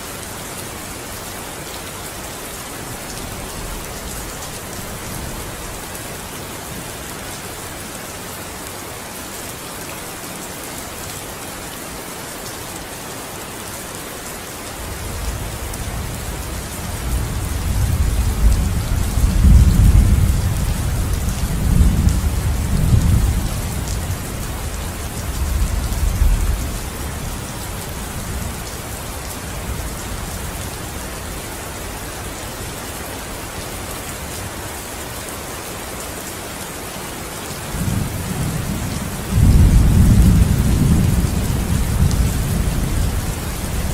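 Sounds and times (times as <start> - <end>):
deep rolling thunder: 37.8 - 43.2.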